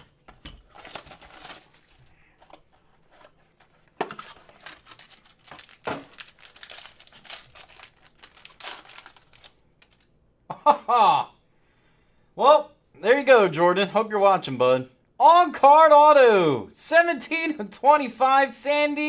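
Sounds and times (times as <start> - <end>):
packaging crackling and tearing: 0.6 - 10.1.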